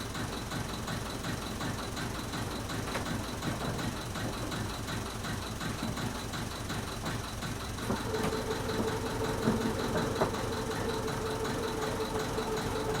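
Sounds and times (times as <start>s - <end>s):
engine idling: 0.0s - 13.0s
steady whine: 7.9s - 13.0s.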